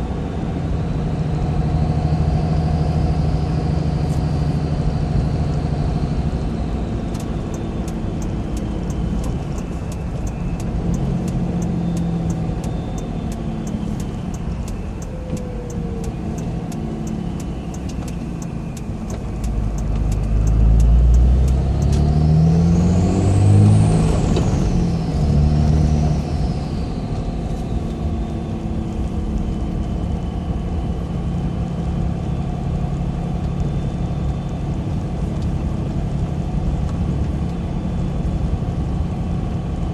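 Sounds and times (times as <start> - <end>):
diesel engine driving: 0.0 - 39.9
faint regular ticking: 7.1 - 22.0.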